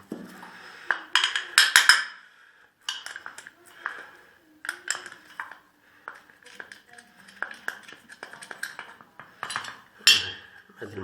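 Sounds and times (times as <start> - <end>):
metal engine parts clinking: 2.9 - 4.0, 4.6 - 10.6.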